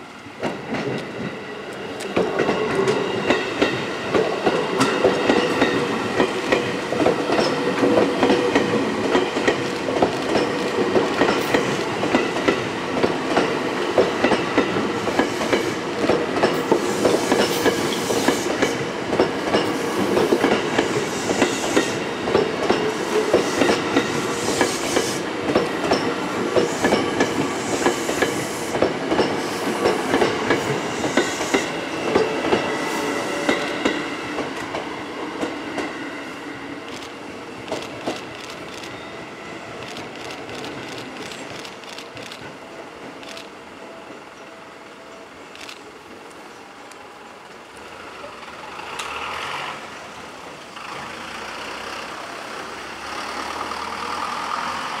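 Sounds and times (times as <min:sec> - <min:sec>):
electric train rolling slowly: 0:00.0 - 0:55.0.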